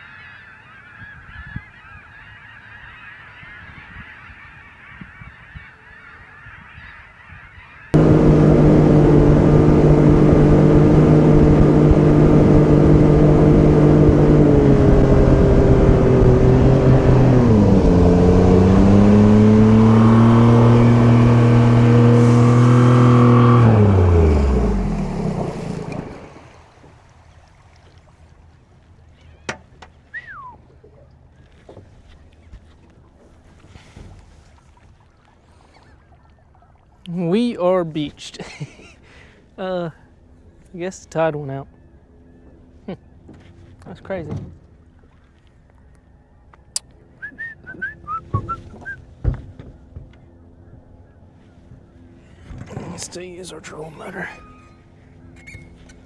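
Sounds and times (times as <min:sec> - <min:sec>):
geese honking: 0:00.0 - 0:08.5, 0:52.3 - 0:55.8
outboard motor running: 0:08.0 - 0:37.5, 0:41.7 - 0:56.0.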